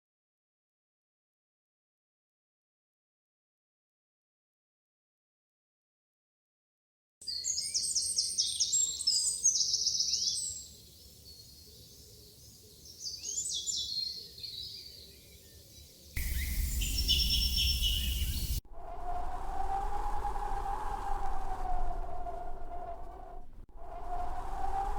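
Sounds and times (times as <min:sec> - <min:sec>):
birds trilling and chirping: 0:16.2 - 0:18.6
steady droning tone: 0:16.2 - 0:19.0
rush of noise: 0:16.2 - 0:22.1.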